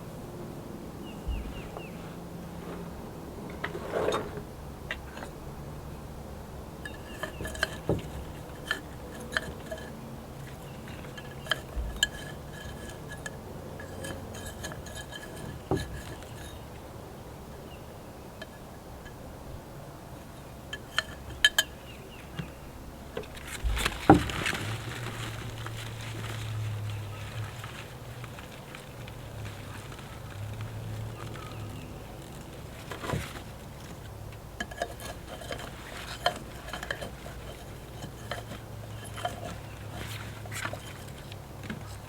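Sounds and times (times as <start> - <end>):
rustling and knocking: 1.2 - 5.4, 6.8 - 16.8, 20.6 - 42.0
pots and tools clinking: 6.8 - 16.8, 20.6 - 25.6, 31.1 - 42.0.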